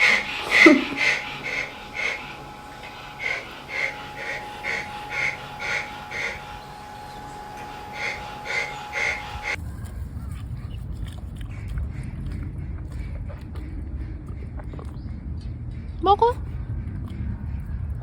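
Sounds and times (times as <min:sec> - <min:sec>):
faint steady hum: 0:00.0 - 0:11.0
wheezy rhythmic breaths: 0:00.0 - 0:18.0.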